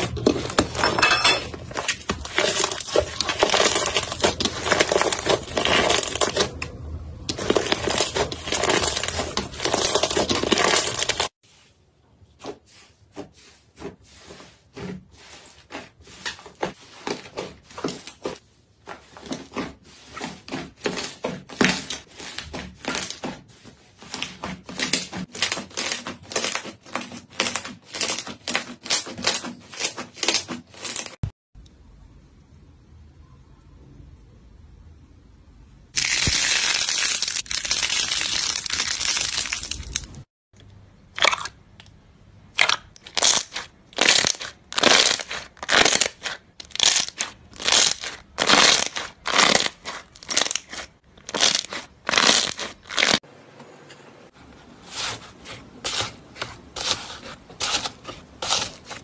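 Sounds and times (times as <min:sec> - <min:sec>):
slime crunchy crackling: 0:01.6 - 0:06.7, 0:07.3 - 0:11.4, 0:36.0 - 0:40.2, 0:42.5 - 0:53.2, 0:54.9 - 0:59.0.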